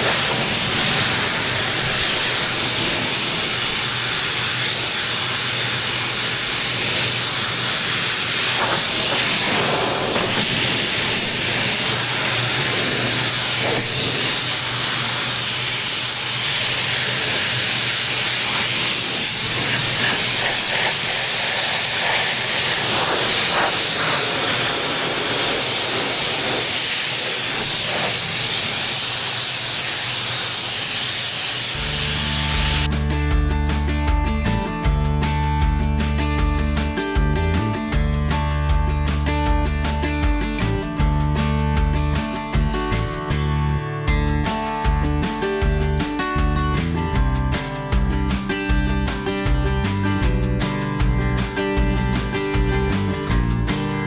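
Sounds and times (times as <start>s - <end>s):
pressure washer spraying: 0.0s - 33.0s.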